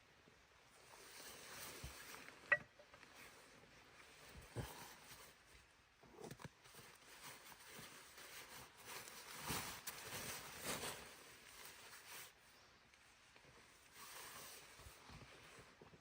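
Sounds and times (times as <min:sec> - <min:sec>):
crunching and rustling: 0:06.1 - 0:12.4.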